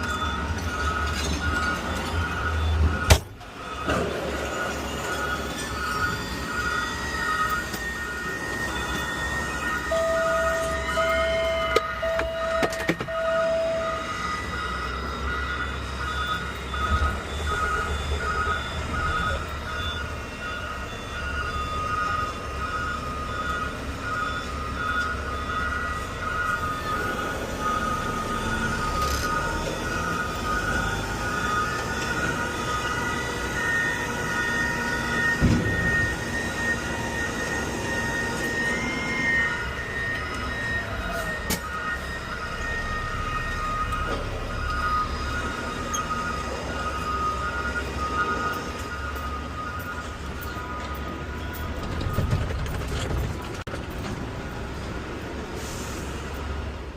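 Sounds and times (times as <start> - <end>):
high whining tones: 0.0 - 52.8
electronic warning beeps: 0.0 - 53.0
truck engine low rumble: 0.0 - 56.9
thump: 35.4 - 35.8.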